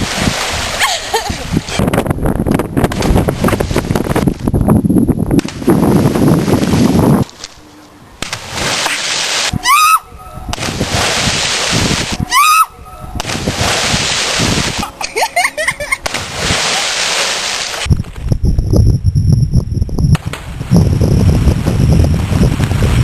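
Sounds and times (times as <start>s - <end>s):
water splashing and sloshing: 0.0s - 4.7s, 5.3s - 18.3s.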